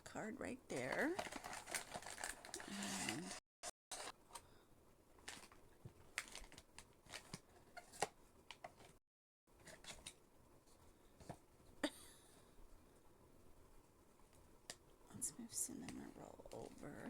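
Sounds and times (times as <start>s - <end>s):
hands handling packaging: 0.7s - 3.3s, 5.2s - 9.0s.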